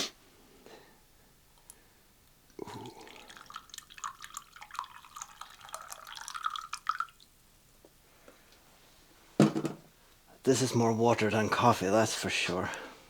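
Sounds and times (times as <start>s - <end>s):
liquid pouring into a cup: 2.6s - 7.3s.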